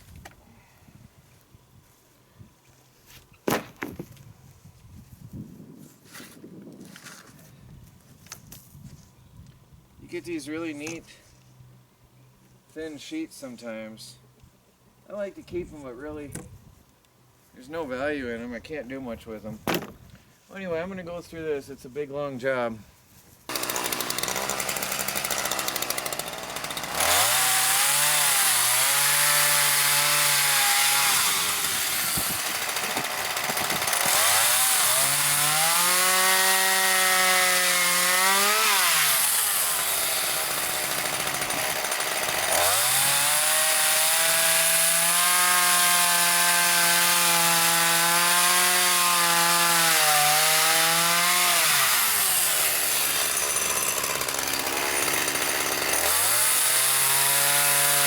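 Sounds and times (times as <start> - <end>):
chainsaw cutting wood: 23.5 - 58.0.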